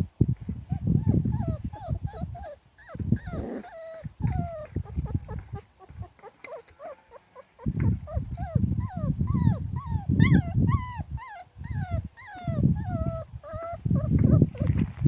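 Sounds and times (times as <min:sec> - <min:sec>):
low rumbling rustling noise: 0:00.0 - 0:06.3, 0:11.9 - 0:15.0
puppies whimpering: 0:00.7 - 0:15.0.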